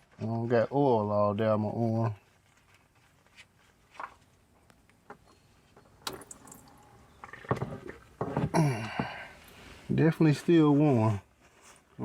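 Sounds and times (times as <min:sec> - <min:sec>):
person grunting: 0:08.5 - 0:09.3.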